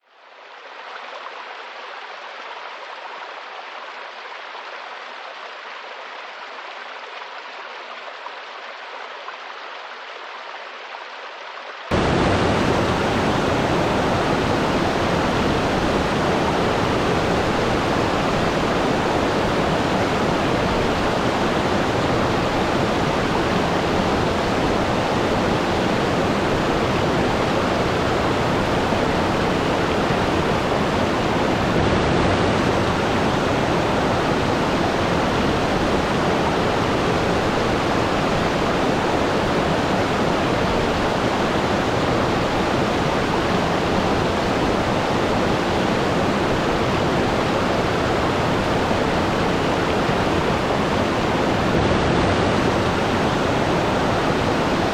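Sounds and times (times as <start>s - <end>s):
waterfall rushing: 11.9s - 54.9s.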